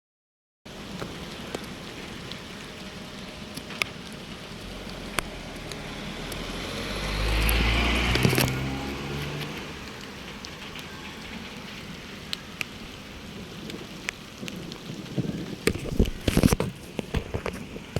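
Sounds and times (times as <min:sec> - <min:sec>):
rain patter: 0:00.7 - 0:17.9
raindrops ticking on a surface: 0:00.7 - 0:17.9
vehicle passing with tyre hiss: 0:04.6 - 0:12.0.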